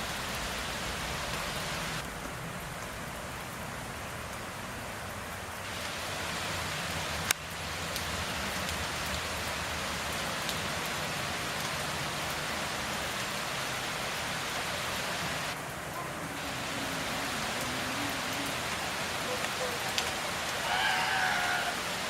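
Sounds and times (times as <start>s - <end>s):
rain pattering: 0.0s - 22.0s.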